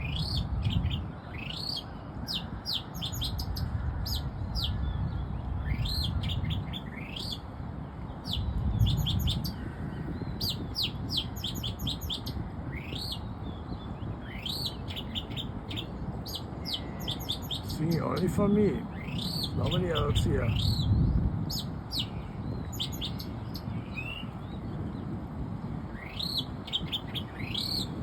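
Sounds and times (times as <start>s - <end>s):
songbird whistling: 10.4s - 13.2s, 14.2s - 17.7s, 19.0s - 19.6s, 21.5s - 24.3s, 26.0s - 27.9s.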